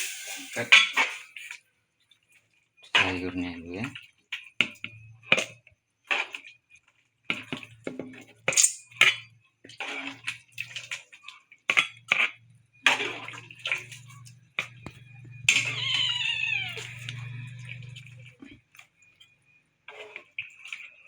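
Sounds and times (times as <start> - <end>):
metal spoon scraping a pot: 0.0 - 1.5, 19.9 - 21.0
curry splashing: 7.3 - 21.0
cat meowing: 15.5 - 17.1.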